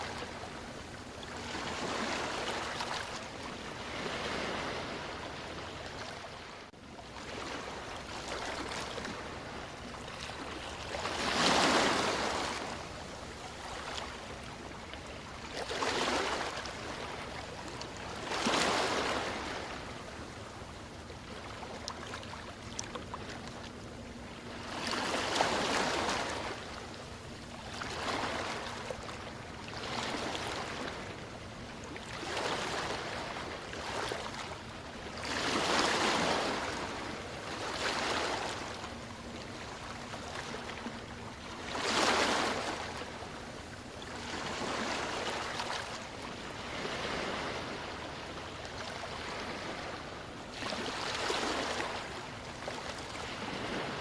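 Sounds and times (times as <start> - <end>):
sea waves washing in: 0.0 - 6.5, 22.5 - 54.0.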